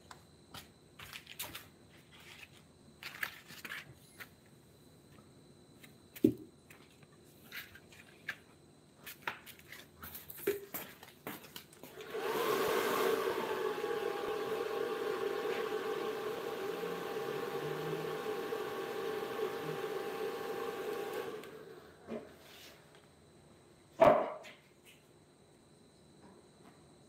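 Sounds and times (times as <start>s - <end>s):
electric motor tool whining: 11.9s - 22.0s.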